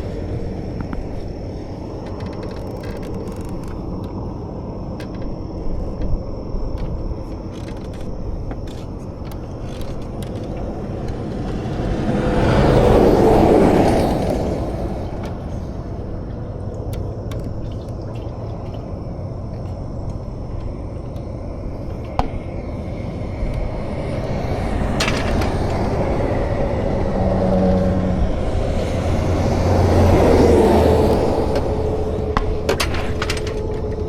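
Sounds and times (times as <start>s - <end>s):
low rumble of highway traffic: 0.0s - 34.0s
vehicle passing close at speed: 10.6s - 15.6s, 23.3s - 32.6s.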